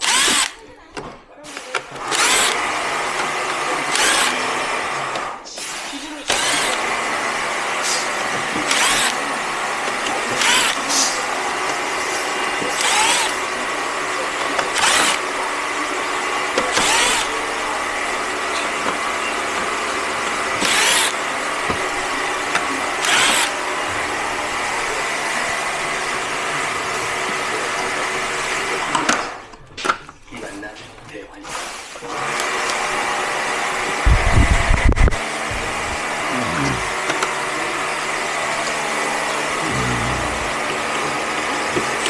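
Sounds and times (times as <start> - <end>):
machine running: 0.0 - 0.6, 1.4 - 23.8.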